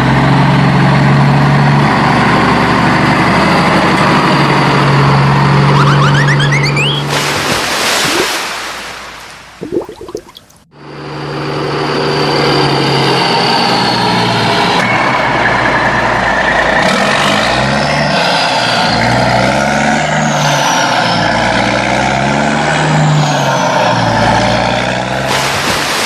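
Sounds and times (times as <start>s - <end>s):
heavy vehicle engine revving: 10.8s - 26.0s.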